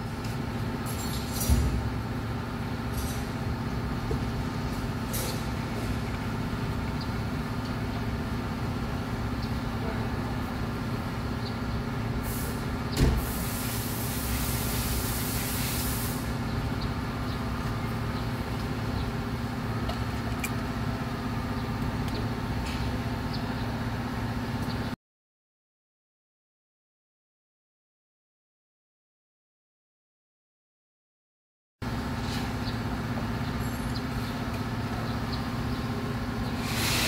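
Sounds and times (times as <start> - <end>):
hiss: 12.2 - 16.4, 36.5 - 37.0
thump: 13.0 - 13.3
car engine idling: 16.2 - 24.4.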